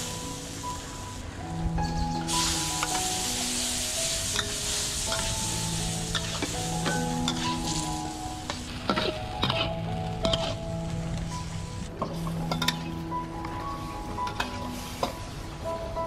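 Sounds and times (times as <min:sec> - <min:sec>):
chicken sizzling in wok: 0:00.0 - 0:12.9
metal spatula scraping wok: 0:06.1 - 0:07.9.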